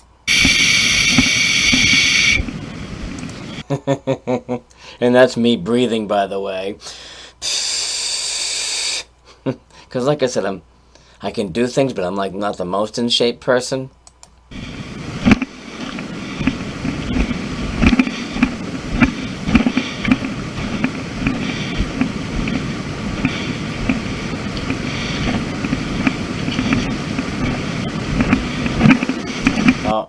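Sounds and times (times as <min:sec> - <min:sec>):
wind on microphone: 0:00.3 - 0:03.6, 0:14.5 - 0:29.9
heavy breathing: 0:06.8 - 0:09.9, 0:14.5 - 0:29.7
camera knocks and rustles: 0:14.6 - 0:29.9.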